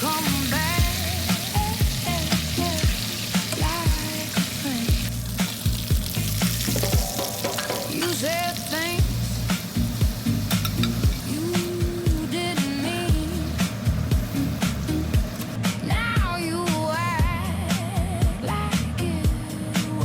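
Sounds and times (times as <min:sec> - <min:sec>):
chicken sizzling in a pan: 0:00.0 - 0:15.6
stirring in a pan: 0:00.0 - 0:15.6
background music with a beat: 0:00.0 - 0:20.0.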